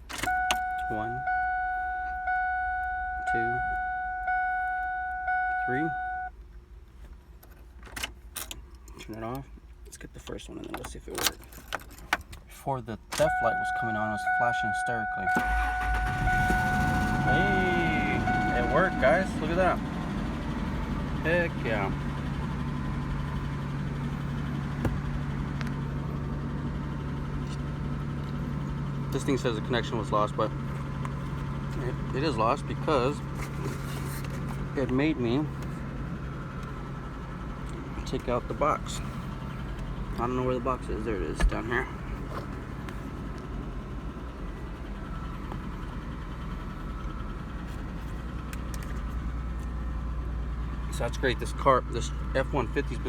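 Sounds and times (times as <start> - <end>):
truck engine idling: 13.2 - 53.0.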